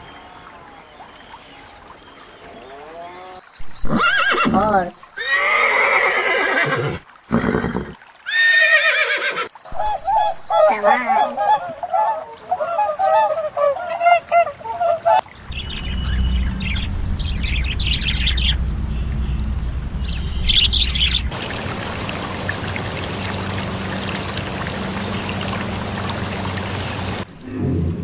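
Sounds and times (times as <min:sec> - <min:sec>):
swan honking: 0:09.8 - 0:16.8, 0:20.2 - 0:27.3
small birds chirping: 0:15.2 - 0:19.4, 0:20.0 - 0:27.2
low rumble: 0:15.4 - 0:21.4.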